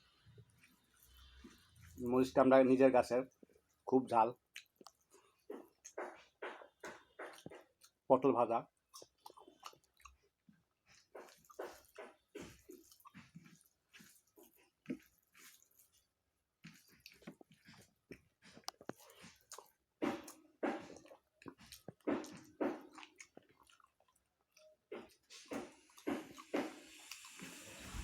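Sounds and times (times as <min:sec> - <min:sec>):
person chewing food: 0:00.0 - 0:02.3, 0:04.4 - 0:28.0
wet smacking lip sounds: 0:16.6 - 0:28.0.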